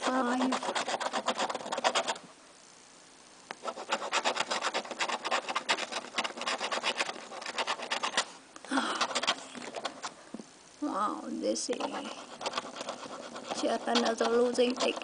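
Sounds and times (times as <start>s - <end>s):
scratching lottery ticket: 0.0s - 2.2s, 3.6s - 8.3s, 9.0s - 10.1s, 11.7s - 15.0s.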